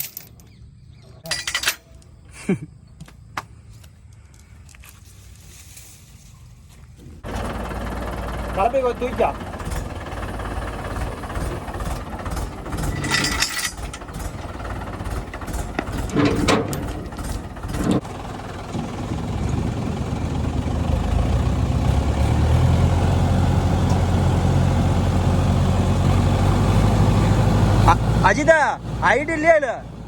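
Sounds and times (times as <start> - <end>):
tractor engine running: 6.8 - 30.0
knocks and clanks: 11.4 - 18.0.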